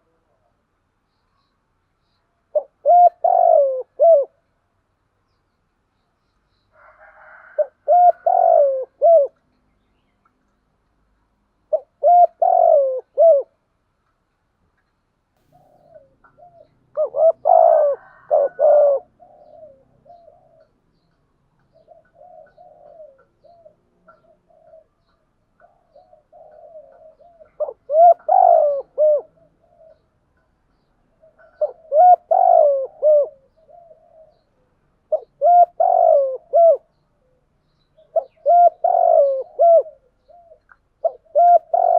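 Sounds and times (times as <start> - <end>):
doves cooing: 2.5 - 4.4, 6.8 - 9.5, 11.6 - 13.6, 15.5 - 30.4, 31.1 - 41.9.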